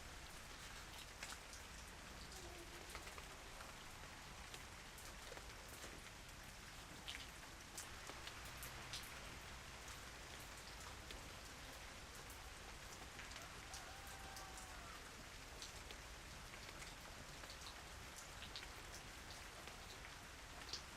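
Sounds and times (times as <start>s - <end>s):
light rain falling: 0.0s - 20.9s
raindrops ticking on surface: 0.0s - 20.9s.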